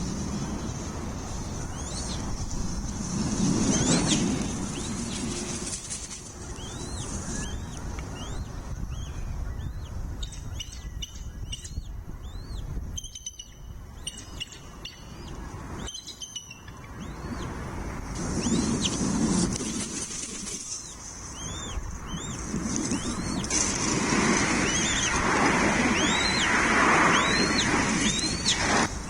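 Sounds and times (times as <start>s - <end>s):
eagle calling: 21.4s - 29.0s.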